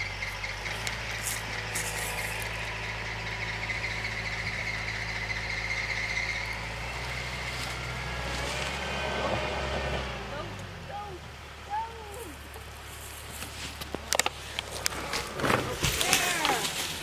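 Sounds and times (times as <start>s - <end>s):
high-pitched whine: 0.0s - 9.8s
tractor engine running: 0.0s - 17.0s.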